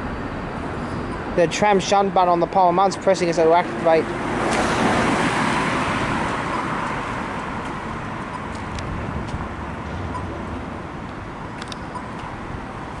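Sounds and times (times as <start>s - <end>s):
vehicle passing by: 3.4s - 11.5s.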